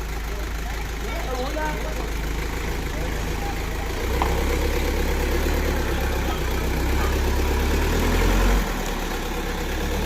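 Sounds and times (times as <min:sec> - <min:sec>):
bulldozer diesel engine rumbling: 0:00.0 - 0:10.0.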